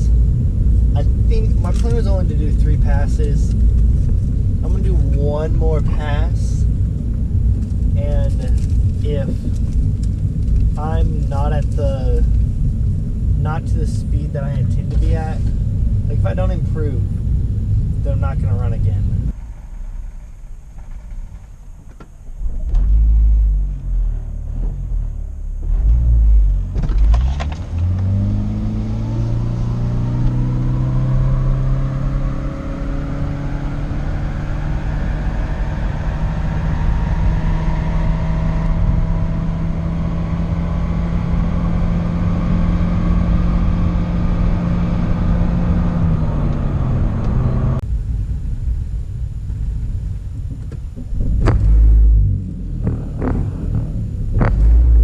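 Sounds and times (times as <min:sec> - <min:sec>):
car engine revving and droning: 0:00.0 - 0:55.0
whine rising in pitch: 0:27.6 - 0:55.0.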